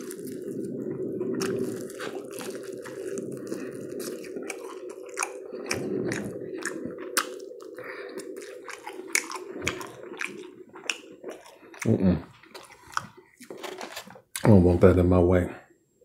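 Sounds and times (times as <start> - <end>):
person biting and chewing: 0.0 - 14.1.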